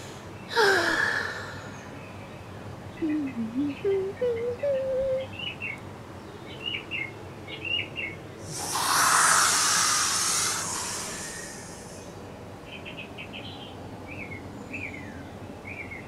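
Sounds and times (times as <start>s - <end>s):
small birds chirping: 0.2s - 16.0s
loud rushing hiss: 8.4s - 12.3s.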